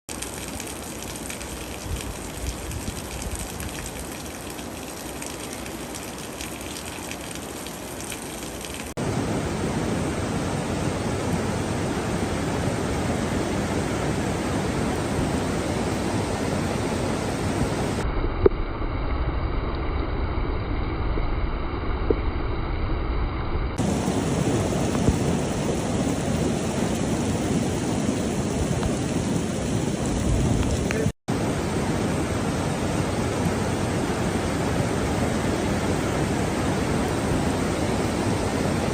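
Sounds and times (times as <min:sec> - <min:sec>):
running floodwater: 0:00.1 - 0:18.0, 0:23.8 - 0:38.9
heavy rain: 0:00.1 - 0:22.1, 0:23.8 - 0:38.9.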